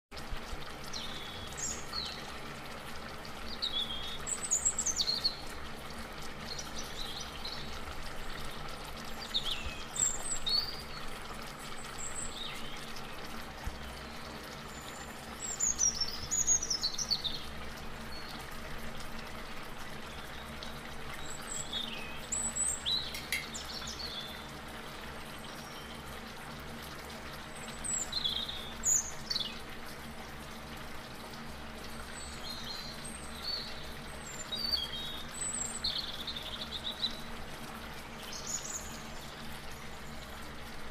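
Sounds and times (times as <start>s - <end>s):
low background hum: 0.2s - 40.9s
small birds chirping: 0.9s - 2.4s, 3.4s - 5.5s, 6.3s - 18.5s, 20.0s - 24.6s, 27.5s - 29.7s, 32.0s - 37.3s, 38.0s - 40.2s.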